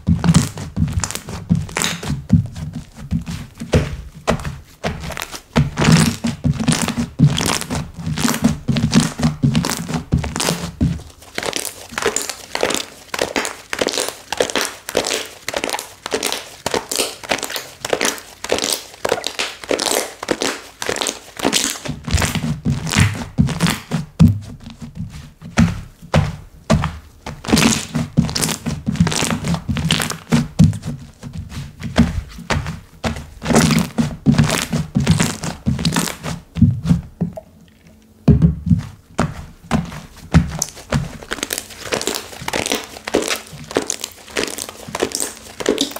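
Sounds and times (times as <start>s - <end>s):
dull thuds of pressing slime: 0.0s - 11.1s, 21.9s - 37.4s, 38.2s - 42.8s.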